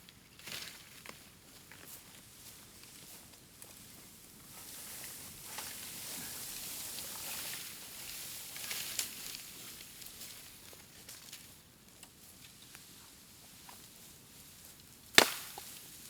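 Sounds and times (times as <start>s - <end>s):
sharp pop from fire: 15.2s - 15.6s.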